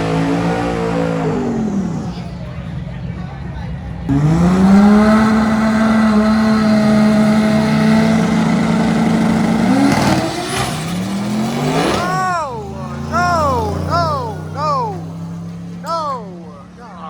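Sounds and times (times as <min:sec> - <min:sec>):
car engine at high revs: 0:00.0 - 0:03.0, 0:03.8 - 0:17.0.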